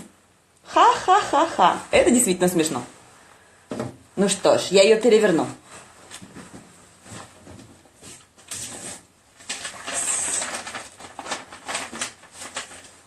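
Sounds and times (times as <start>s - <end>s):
paper rustling: 5.7s - 13.0s
paper scraping: 8.0s - 13.0s.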